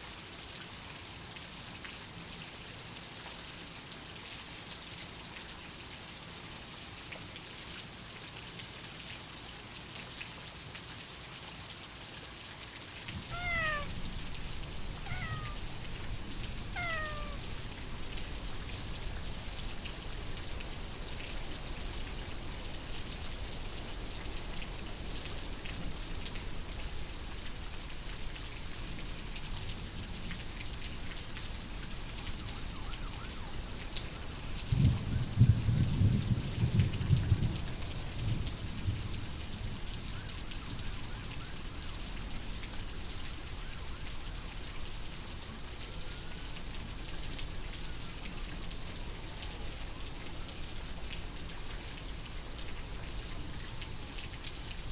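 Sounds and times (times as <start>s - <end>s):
steady rain falling: 0.0s - 54.9s
cat meowing: 13.2s - 17.6s.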